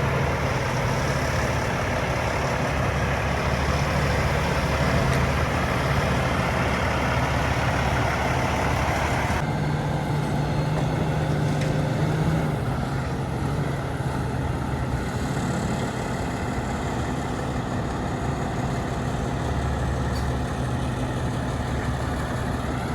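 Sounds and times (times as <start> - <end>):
diesel truck engine idling: 0.0 - 22.9.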